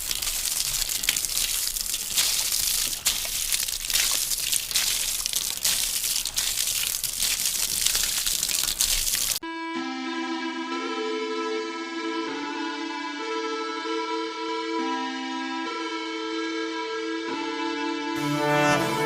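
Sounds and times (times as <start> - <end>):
music: 9.4 - 19.0.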